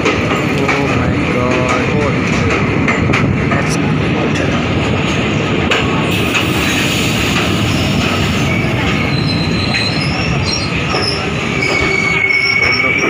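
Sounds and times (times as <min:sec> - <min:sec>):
train wheels rumbling on rails: 0:00.0 - 0:13.0
high squeal of wheels on rail: 0:06.2 - 0:13.0.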